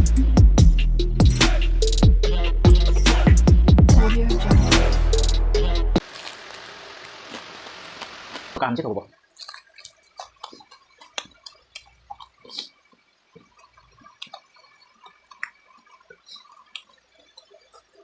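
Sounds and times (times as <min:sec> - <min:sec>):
wet chewing mouth smacks: 0:09.4 - 0:18.0.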